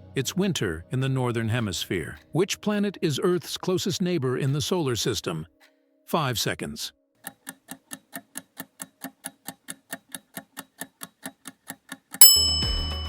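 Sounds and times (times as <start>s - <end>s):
background music: 0.0s - 7.2s, 12.2s - 13.0s
bright chime: 12.2s - 13.0s.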